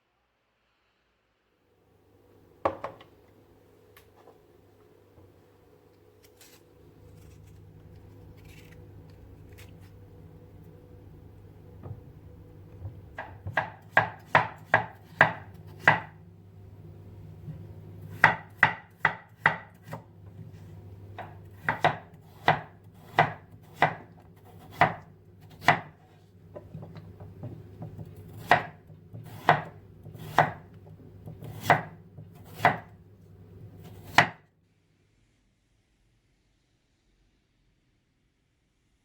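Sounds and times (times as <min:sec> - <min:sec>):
low steady hum: 0:00.6 - 0:34.2
knife chopping on cutting board: 0:12.8 - 0:16.2, 0:18.0 - 0:20.6, 0:21.2 - 0:33.0, 0:33.8 - 0:34.4.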